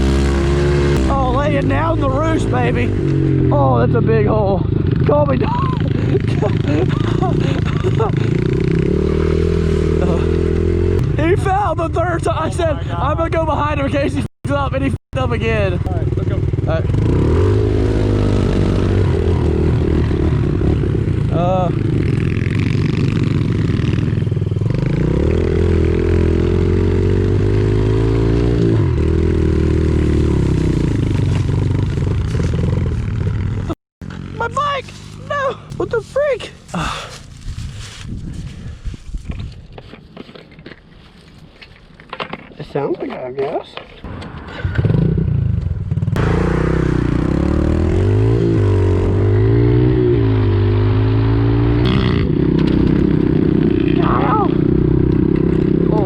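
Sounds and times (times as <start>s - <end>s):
pit bike engine revving: 0.0s - 12.5s, 15.4s - 35.8s, 44.7s - 56.0s
pit bike engine running: 0.0s - 12.7s.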